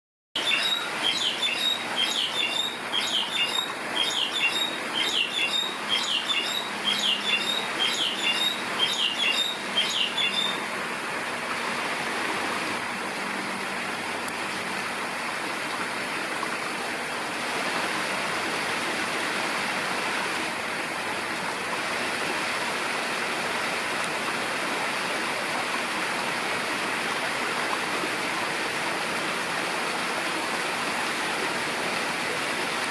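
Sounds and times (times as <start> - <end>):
bird chirping: 0.4 - 10.6.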